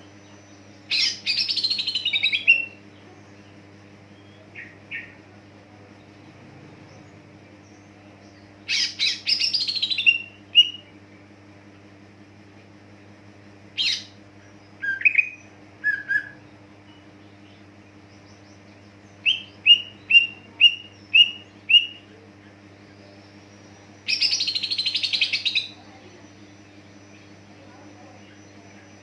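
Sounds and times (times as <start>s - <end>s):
bird buzzy chatter: 0.0s - 29.0s
bird whistled notes: 14.8s - 16.4s.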